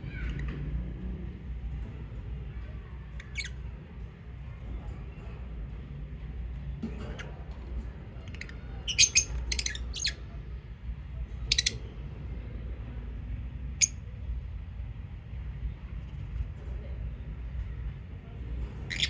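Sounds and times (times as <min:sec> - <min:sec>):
low steady rumble: 0:00.0 - 0:19.0
lovebirds chirping: 0:08.4 - 0:10.2.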